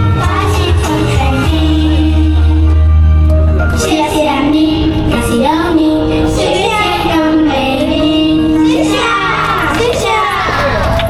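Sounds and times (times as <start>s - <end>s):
musical accompaniment: 0.0s - 10.2s
girl singing high melody: 3.7s - 10.4s.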